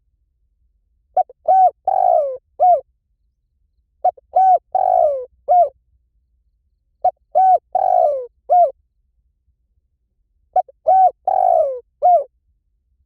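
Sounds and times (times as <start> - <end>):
dove cooing: 1.2 - 2.8, 4.0 - 5.7, 7.0 - 8.8, 10.6 - 12.3.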